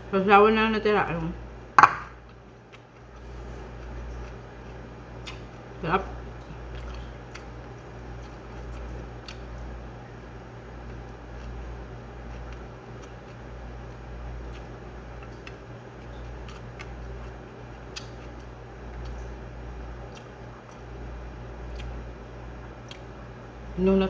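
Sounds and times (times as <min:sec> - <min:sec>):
steady low hum: 0:00.0 - 0:24.0
person chewing with mouth clicks: 0:02.2 - 0:05.5, 0:06.5 - 0:09.6, 0:12.2 - 0:19.3, 0:20.1 - 0:20.9, 0:21.7 - 0:22.0, 0:22.8 - 0:23.1.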